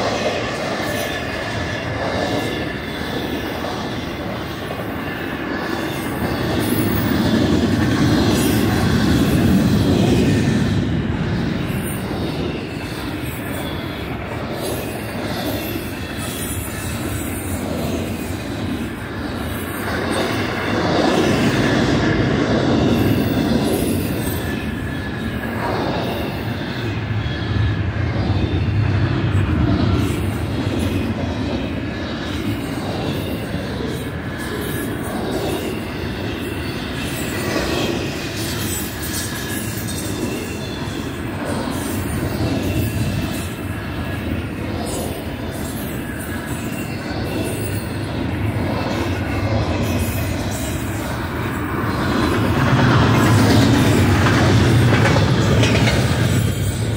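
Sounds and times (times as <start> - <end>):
steel wheels rumbling on rail: 0.0 - 56.9
high wheel squeal: 11.3 - 29.0
rail clack: 29.3 - 56.9.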